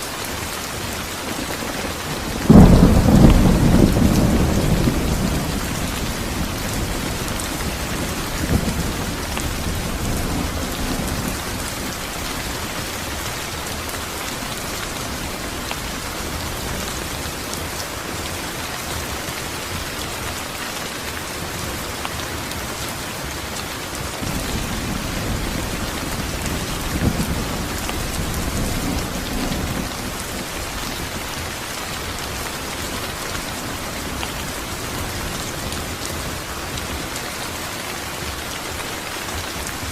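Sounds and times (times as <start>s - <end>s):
steady rain falling: 0.0s - 39.9s
thunder rumbles: 1.3s - 17.8s, 24.2s - 37.0s.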